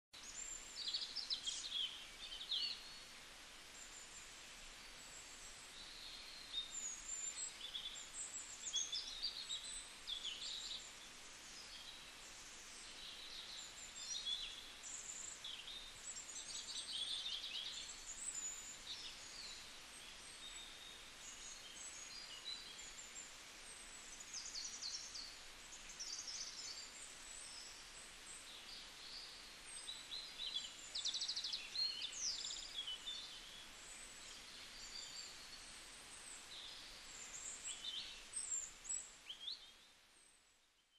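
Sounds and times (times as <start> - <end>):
faint steady hiss: 0.1 - 40.9.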